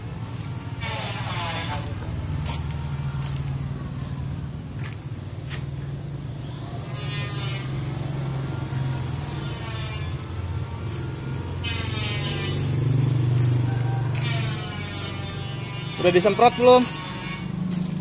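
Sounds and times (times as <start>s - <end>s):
wavering high-pitched sounds: 6.3s - 16.4s.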